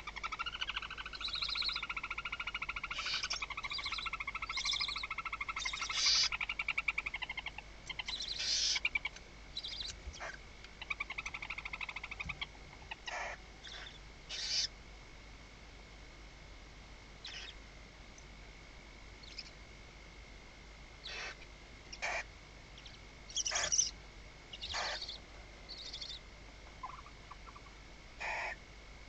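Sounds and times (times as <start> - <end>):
faint high-pitched whine: 0.0 - 29.0
owls raspy hissing calls: 0.1 - 14.7, 17.2 - 17.6, 21.0 - 22.3, 23.3 - 26.2, 26.8 - 28.6.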